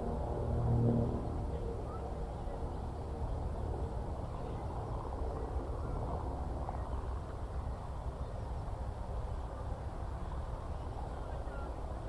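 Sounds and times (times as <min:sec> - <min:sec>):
low open-country rumble: 0:00.0 - 0:08.1.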